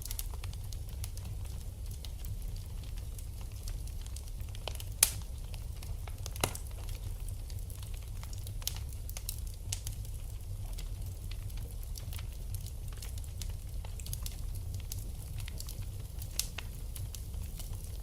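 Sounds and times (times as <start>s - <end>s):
wood fire crackling: 0.0s - 18.0s
sharp fire pops: 4.6s - 5.5s, 6.2s - 7.0s.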